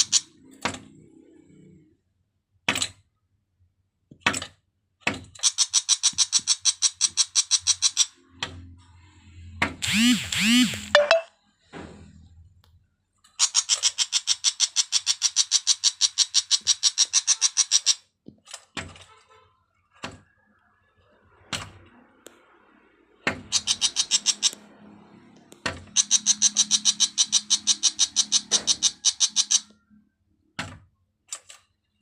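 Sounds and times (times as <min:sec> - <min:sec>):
bird rattling call: 0:05.4 - 0:08.2, 0:13.4 - 0:18.0, 0:23.4 - 0:24.6, 0:25.9 - 0:29.7.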